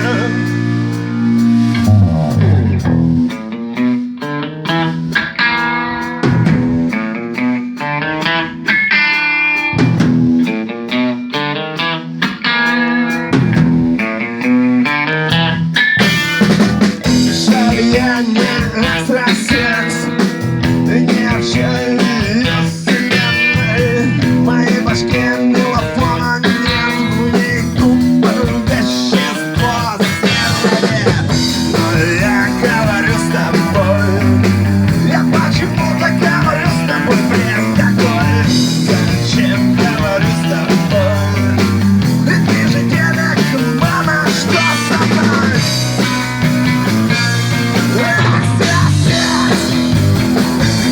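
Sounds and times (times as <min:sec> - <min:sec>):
electric guitar: 0:00.0 - 0:50.9
rock band playing: 0:00.0 - 0:50.9.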